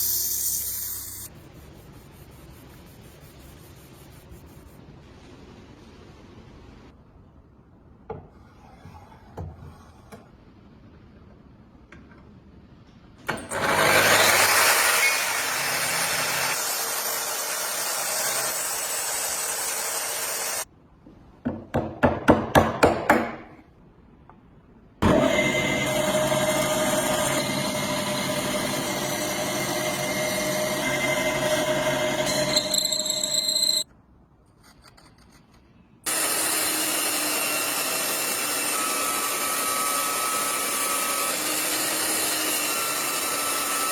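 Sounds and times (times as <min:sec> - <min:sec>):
power tool running with hum: 0:13.3 - 0:20.6, 0:25.0 - 0:33.8, 0:36.1 - 0:43.9.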